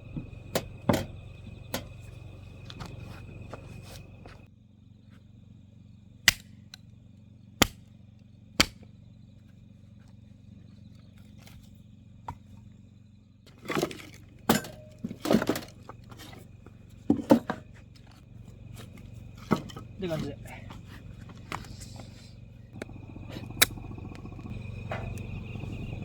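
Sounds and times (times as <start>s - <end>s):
sharp cracks and knocks: 6.2s - 6.9s, 7.6s - 8.0s, 8.6s - 9.0s.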